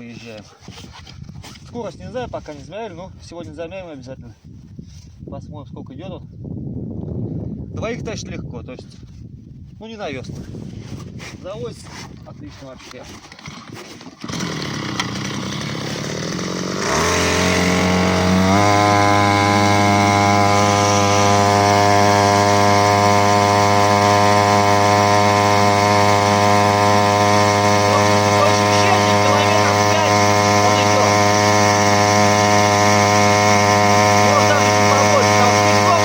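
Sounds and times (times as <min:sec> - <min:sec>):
outboard motor running: 0:12.9 - 0:36.0.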